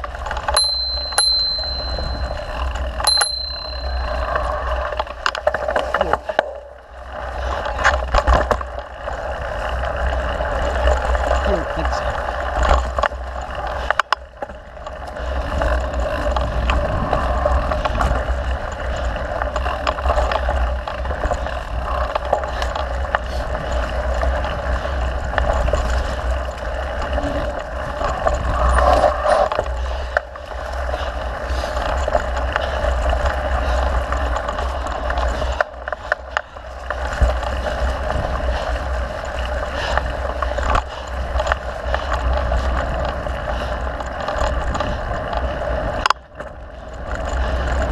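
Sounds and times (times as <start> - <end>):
tyres rolling on dirt: 0.0 - 47.9
bike knocks and rattles: 7.4 - 47.9
wind on microphone: 15.2 - 19.4.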